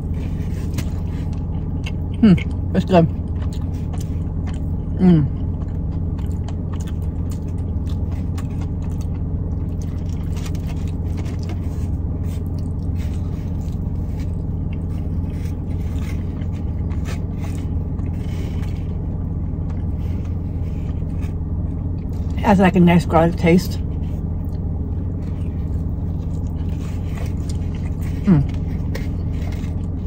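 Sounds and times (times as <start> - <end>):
person chewing food: 0.0 - 22.4, 23.8 - 30.0
car interior low rumble: 0.0 - 30.0
person humming mmm: 2.1 - 2.7, 4.9 - 5.6, 28.0 - 29.2.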